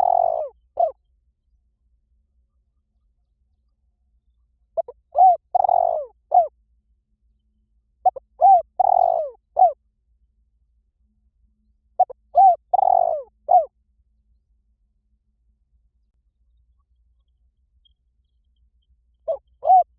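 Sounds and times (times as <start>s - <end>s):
dove cooing: 0.0s - 1.0s, 4.8s - 6.5s, 8.0s - 9.8s, 12.0s - 13.7s, 19.3s - 19.9s.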